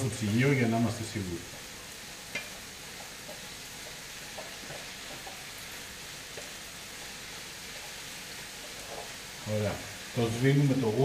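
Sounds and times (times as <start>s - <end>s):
food sizzling in wok: 0.0s - 11.0s
wooden spatula scraping and tapping: 2.3s - 6.6s, 7.7s - 9.2s.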